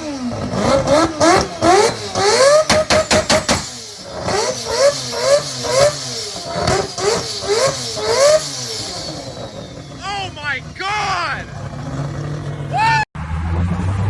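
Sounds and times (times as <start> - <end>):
car engine revving: 0.0 - 14.0
exhaust pops and bangs: 2.6 - 3.7.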